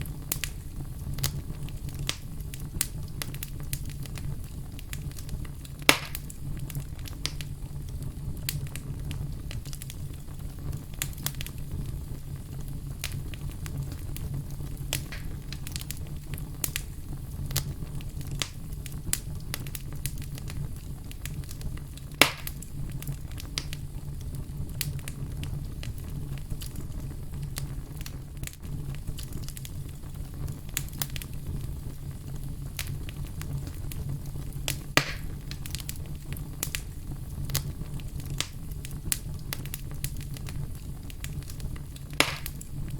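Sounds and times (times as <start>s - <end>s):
wood fire crackling: 0.0s - 42.9s
loud sharp pops: 5.9s - 6.3s, 15.0s - 15.7s, 22.2s - 22.6s, 34.7s - 35.6s, 42.2s - 42.6s.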